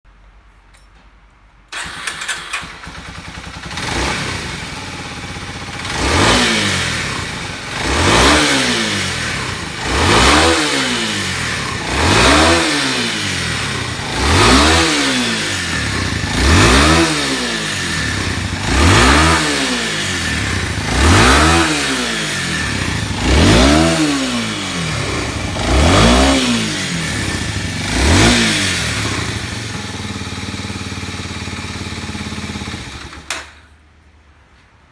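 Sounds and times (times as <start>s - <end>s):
motorcycle engine starting: 1.7s - 33.8s
engine revving and idling: 1.8s - 33.3s.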